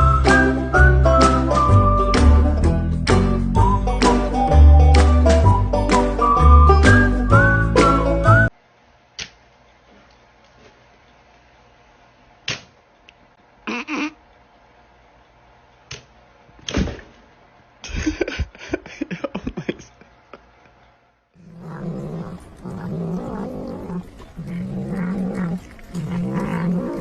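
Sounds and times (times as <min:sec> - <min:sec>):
pet animal growling: 0:21.4 - 0:27.0.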